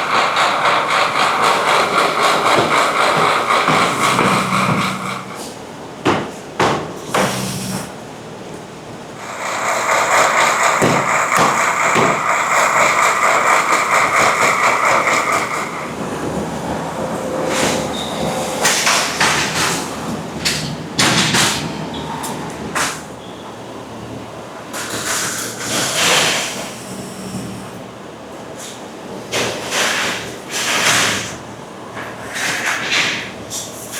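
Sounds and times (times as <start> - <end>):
machinery whirring: 0.0 - 6.0, 7.0 - 8.3, 8.9 - 21.0
sharp machine clacks and knocks: 0.0 - 7.9, 9.2 - 16.1.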